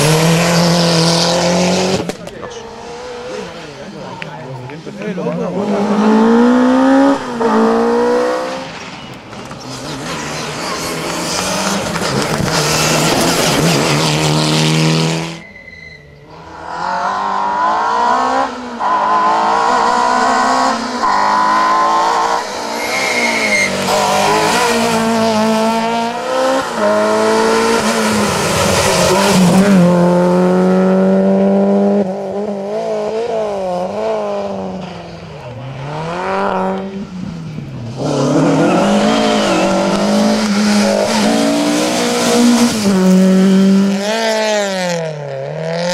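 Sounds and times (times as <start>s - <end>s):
rally car engines revving: 0.0s - 15.5s, 16.1s - 45.9s
tyre squeal: 15.3s - 16.4s, 22.7s - 24.9s, 38.2s - 41.6s.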